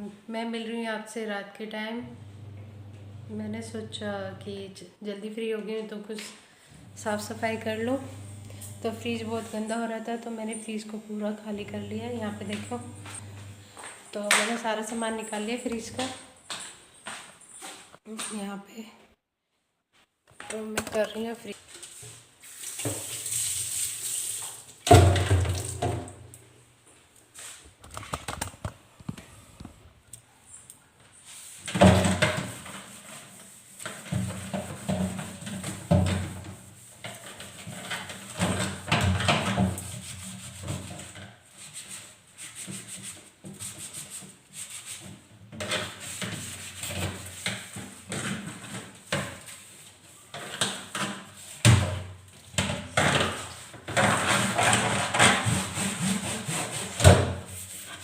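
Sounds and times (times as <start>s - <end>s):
scrubbing and wiping by hand: 21.8s - 24.8s, 31.2s - 50.3s, 53.4s - 58.0s.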